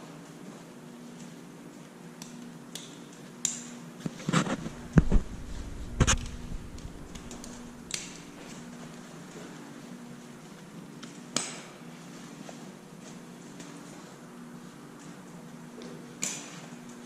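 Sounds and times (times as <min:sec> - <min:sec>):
steady low hum: 0:04.0 - 0:09.9
deep thumps: 0:04.5 - 0:07.9.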